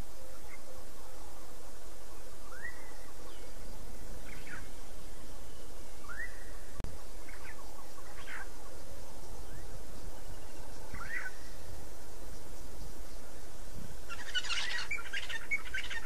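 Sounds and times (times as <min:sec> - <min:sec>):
outdoor background hiss: 0:00.0 - 0:16.0
up-swept whistled bird calls: 0:02.4 - 0:11.7, 0:14.1 - 0:16.0.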